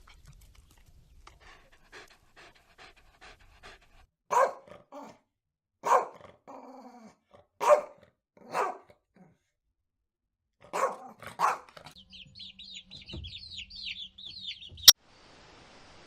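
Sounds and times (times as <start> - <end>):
dog panting: 0.0 - 4.1
dog barking: 4.3 - 5.2, 5.8 - 6.4, 7.6 - 9.0, 10.6 - 12.0.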